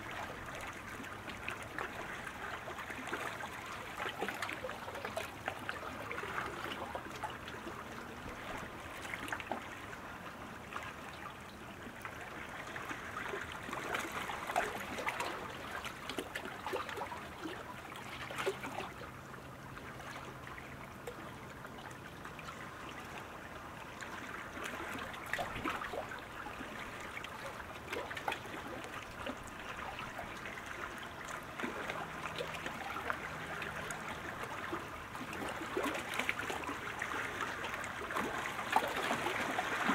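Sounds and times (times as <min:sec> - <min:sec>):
water lapping and splashing: 0:00.0 - 0:39.9.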